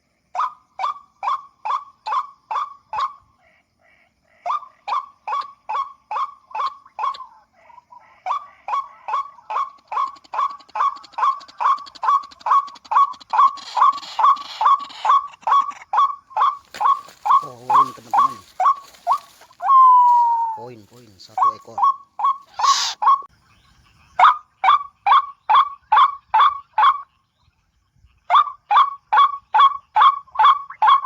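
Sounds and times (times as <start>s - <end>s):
harsh bird calls from a speaker: 4.4s - 28.3s.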